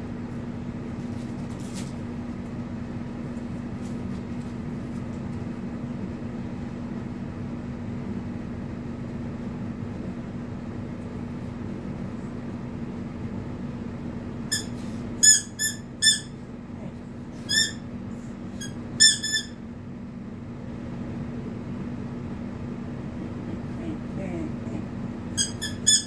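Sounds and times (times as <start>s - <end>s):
steady low hum: 0.0s - 26.0s
squeaky dog toy squeaking: 14.5s - 16.4s, 17.5s - 17.8s, 18.6s - 19.6s, 25.4s - 26.0s.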